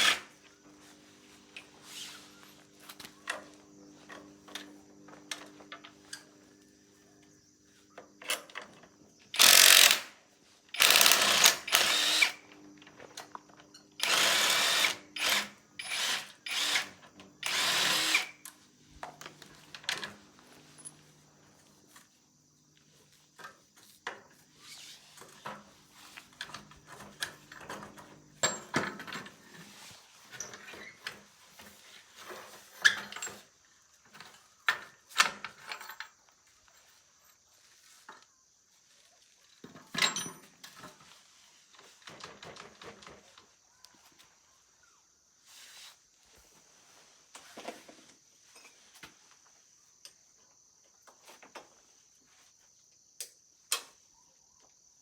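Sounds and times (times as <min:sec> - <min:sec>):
power tool bursts: 0:00.0 - 0:00.3, 0:09.4 - 0:12.5, 0:14.0 - 0:18.4.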